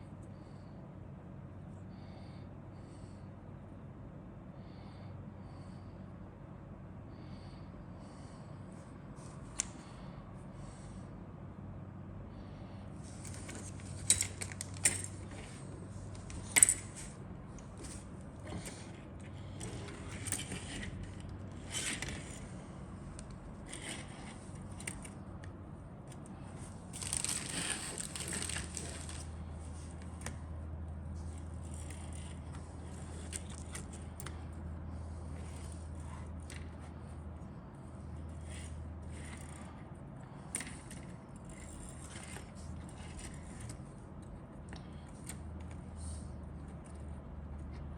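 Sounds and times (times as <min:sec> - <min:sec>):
packaging crinkling: 0:26.9 - 0:29.3.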